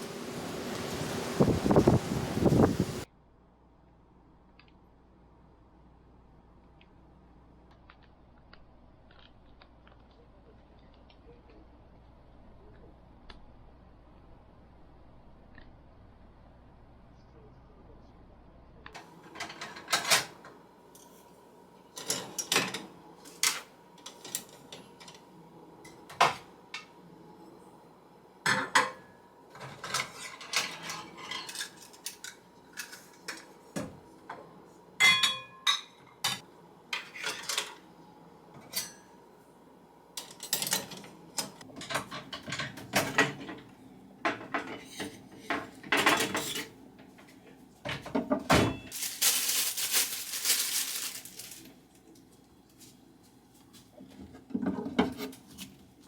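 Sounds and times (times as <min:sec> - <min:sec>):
dishes and cutlery clinking: 0:28.5 - 0:33.5, 0:35.0 - 0:36.4.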